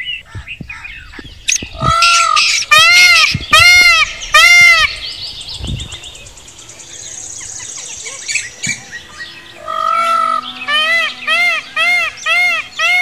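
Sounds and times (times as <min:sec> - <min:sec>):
high rapid bird trill: 0:00.0 - 0:13.0
loud steady bird call: 0:00.0 - 0:13.0
loud harsh bird call: 0:00.2 - 0:05.4, 0:06.5 - 0:13.0.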